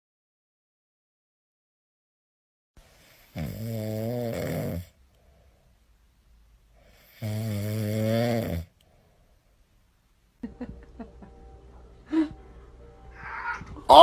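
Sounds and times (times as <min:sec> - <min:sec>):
cat snoring: 0:03.0 - 0:05.0, 0:06.8 - 0:08.7
faint breath: 0:04.9 - 0:06.0, 0:06.7 - 0:07.3, 0:08.8 - 0:09.8.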